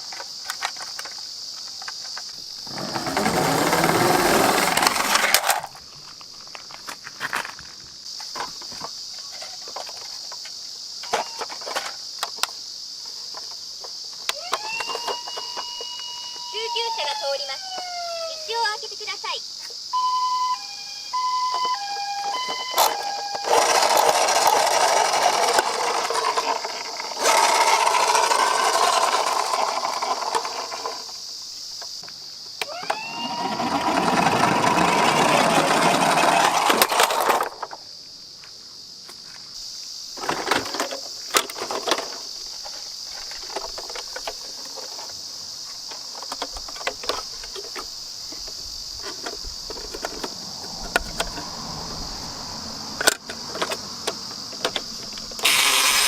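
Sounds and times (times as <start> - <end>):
toy cars clicking and knocking: 0.0 - 12.6, 13.3 - 16.1, 21.4 - 31.2, 31.8 - 37.8, 40.2 - 51.4, 53.0 - 56.0
faint steady hiss: 0.0 - 23.6, 24.6 - 32.8, 36.3 - 56.0
toy cars rattling down a ramp: 2.6 - 5.8, 22.3 - 31.2, 32.6 - 37.8, 40.2 - 45.1, 54.6 - 56.0.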